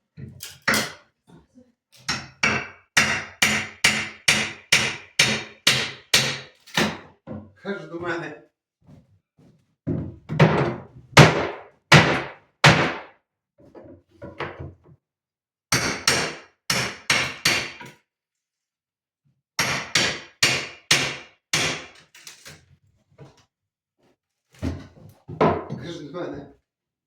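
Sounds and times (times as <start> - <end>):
hammer striking wood: 2.1 - 7.1, 10.4 - 13.1, 15.7 - 18.0, 19.6 - 22.0.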